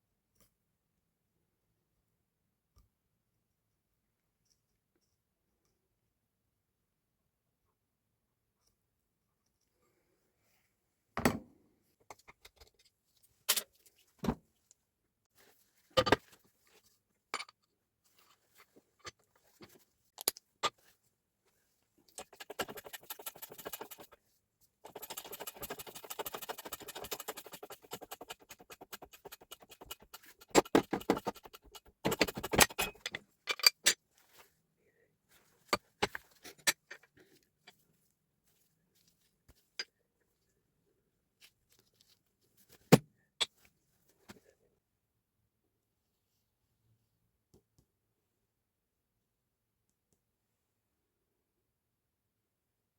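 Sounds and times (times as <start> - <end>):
quick continuous metal rattling: 22.2 - 24.2, 24.8 - 33.0.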